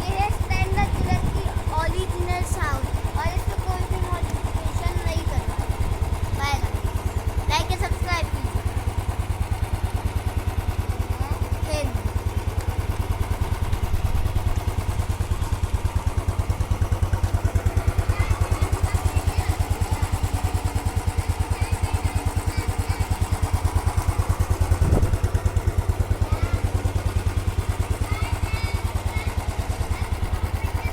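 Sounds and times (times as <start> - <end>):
motorcycle engine idling: 0.0 - 30.9.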